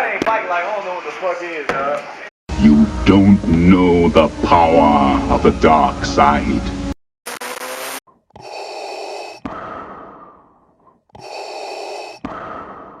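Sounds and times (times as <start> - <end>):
mechanical respirator breathing: 8.2 - 13.0.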